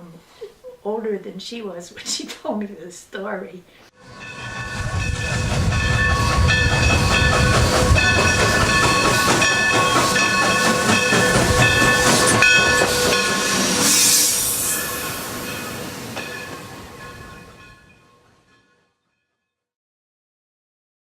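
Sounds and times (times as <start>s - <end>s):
steam hiss: 4.0s - 17.6s
steam locomotive rumbling: 4.0s - 18.2s
steam whistle blowing: 4.1s - 15.9s.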